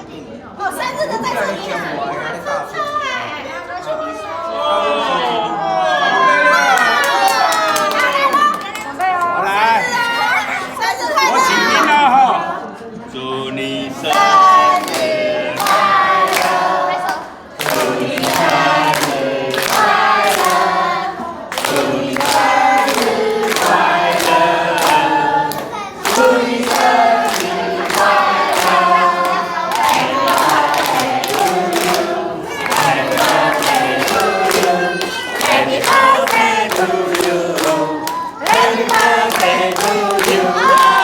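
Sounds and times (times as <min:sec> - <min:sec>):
voices singing together: 0:11.2 - 0:41.0.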